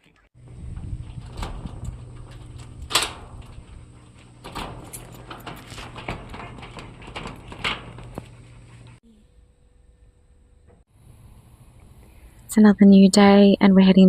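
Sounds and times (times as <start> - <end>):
sharp knocks and rattles: 0.4 - 9.0
steady low hum: 0.4 - 12.6.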